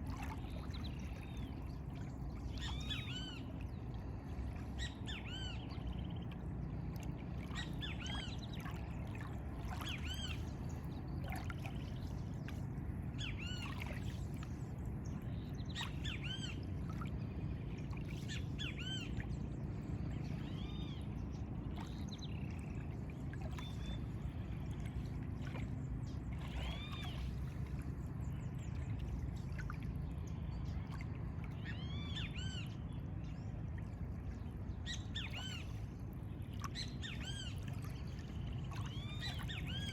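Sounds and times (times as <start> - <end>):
steady low rumble: 0.0 - 39.9.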